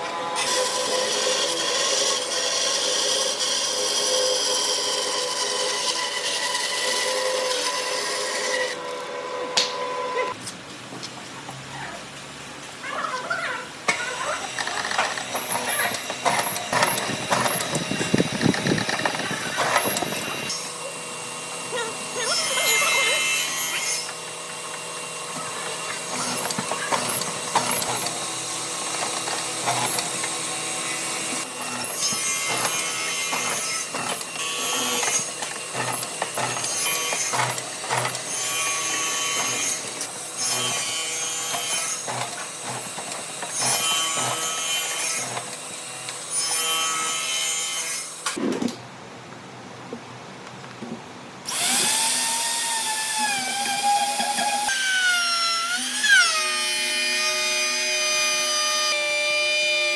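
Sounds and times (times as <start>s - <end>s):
hand tool rasping wood: 14.4s - 20.8s, 22.2s - 45.4s.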